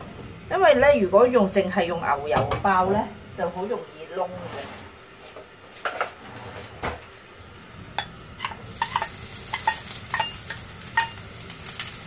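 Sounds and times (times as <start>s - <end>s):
ginger sizzling in hot oil: 8.2s - 12.0s.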